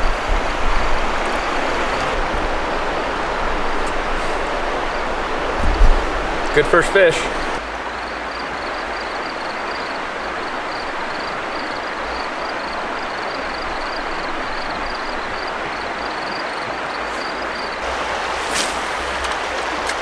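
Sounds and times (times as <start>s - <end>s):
river water rushing: 0.0s - 7.7s, 16.8s - 20.0s.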